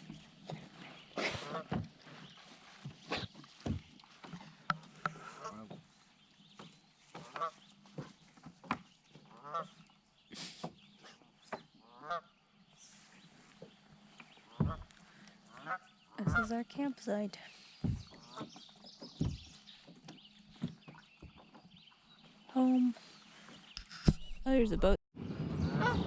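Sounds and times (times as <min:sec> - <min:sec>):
geese honking: 0:11.9 - 0:12.3, 0:15.5 - 0:16.5.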